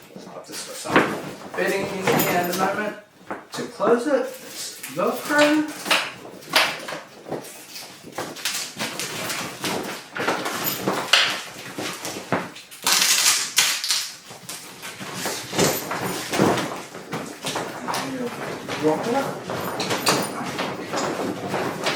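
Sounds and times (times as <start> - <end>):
velcro rasping: 4.4 - 16.3.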